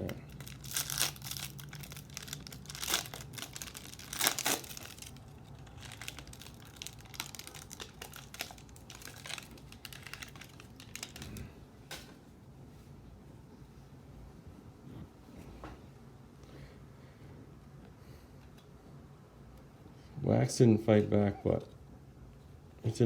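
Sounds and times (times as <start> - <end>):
wrapper tearing and crinkling: 0.0 - 11.5.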